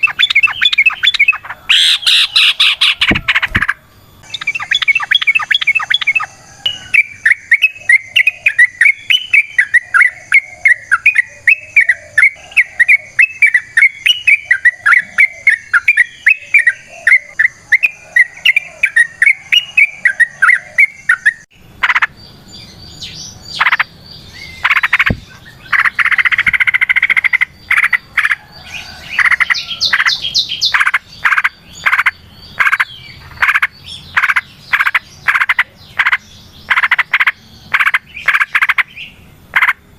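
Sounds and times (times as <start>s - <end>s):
harsh croaking calls: 0.0s - 22.2s, 23.3s - 39.9s
bird singing bubbling notes: 0.0s - 28.5s.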